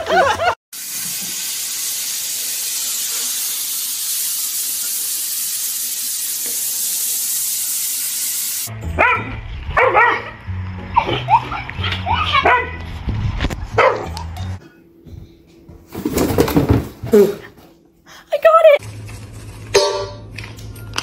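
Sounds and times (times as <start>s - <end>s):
dog barking and yipping: 9.0s - 10.4s, 11.0s - 12.8s, 13.8s - 14.3s.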